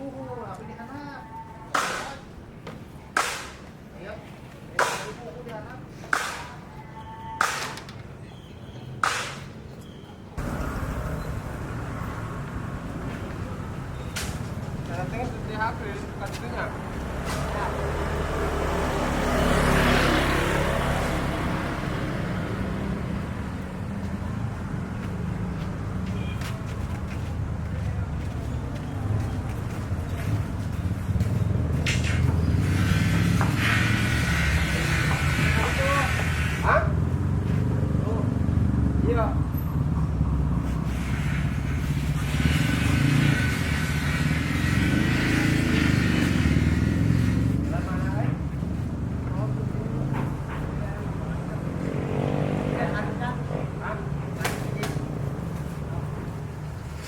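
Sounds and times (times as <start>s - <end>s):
engine running: 10.4s - 16.0s
low engine hum: 10.4s - 32.7s
vehicle passing by: 10.4s - 57.0s.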